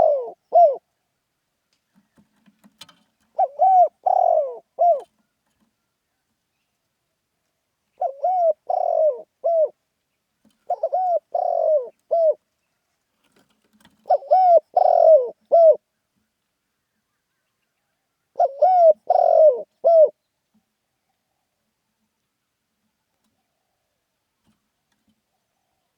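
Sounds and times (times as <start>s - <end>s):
dove cooing: 0.0s - 0.9s, 3.3s - 5.2s, 7.9s - 9.8s, 10.6s - 12.4s, 14.0s - 15.8s, 18.3s - 20.2s.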